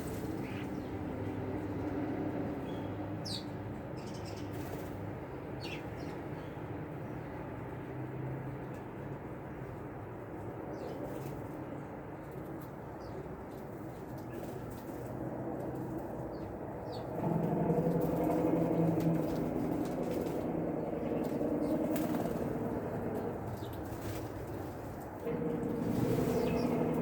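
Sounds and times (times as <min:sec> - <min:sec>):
low motor drone: 0:14.9 - 0:27.0.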